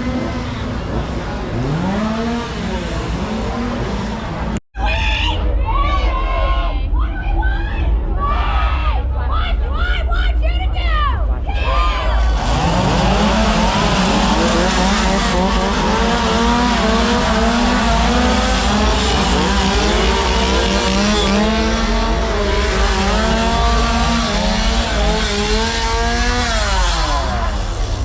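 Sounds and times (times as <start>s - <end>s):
chainsaws revving: 0.0s - 4.6s, 12.2s - 28.0s.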